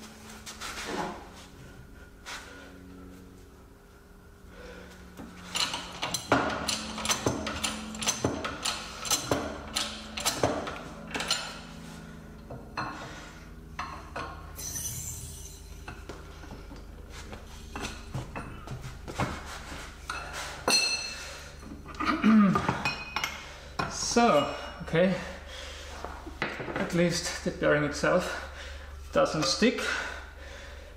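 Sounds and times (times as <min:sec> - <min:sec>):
steel cups and tools clinking: 0:13.8 - 0:16.0.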